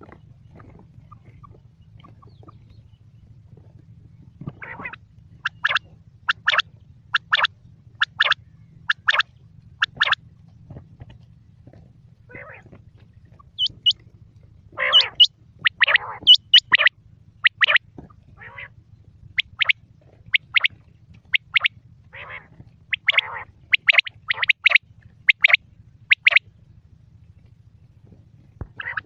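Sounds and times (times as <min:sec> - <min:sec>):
quail calling: 0:00.0 - 0:02.9, 0:04.4 - 0:10.2, 0:12.3 - 0:14.0, 0:14.7 - 0:26.4, 0:28.6 - 0:29.0
faint low hum: 0:00.0 - 0:29.0.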